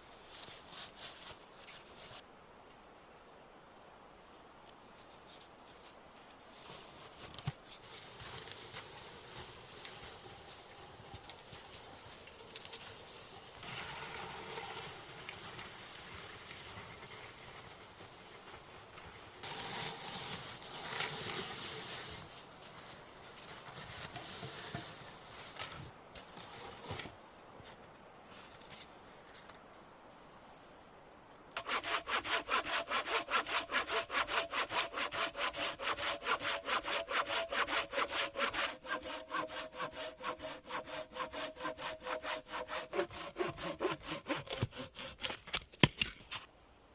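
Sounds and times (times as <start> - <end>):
hand saw cutting wood: 31.6 - 46.5.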